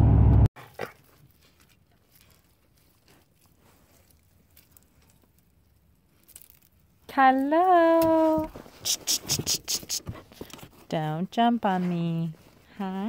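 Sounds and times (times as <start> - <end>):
faint small ticks and rustles: 0.9 - 7.5.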